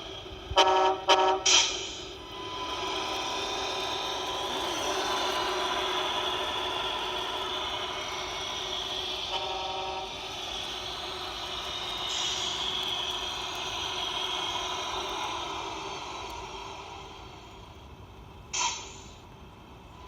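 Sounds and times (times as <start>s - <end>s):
simulated diesel truck engine: 0.0s - 20.0s
truck horn toot: 0.6s - 1.6s.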